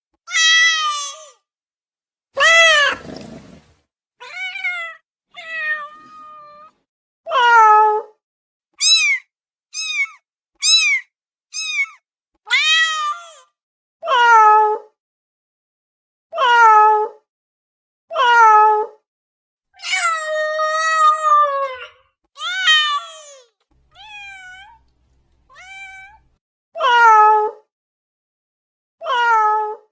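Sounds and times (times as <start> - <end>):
cat meowing: 0.3 - 1.4, 2.4 - 3.2, 4.2 - 8.0, 8.8 - 9.2, 9.8 - 13.5, 19.8 - 26.3.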